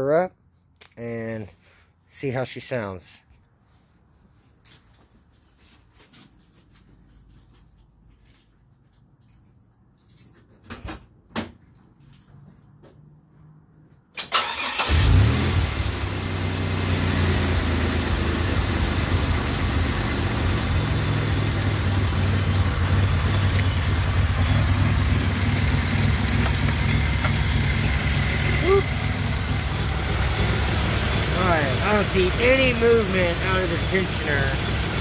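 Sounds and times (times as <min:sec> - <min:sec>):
car engine starting and idling: 0:14.2 - 0:35.0.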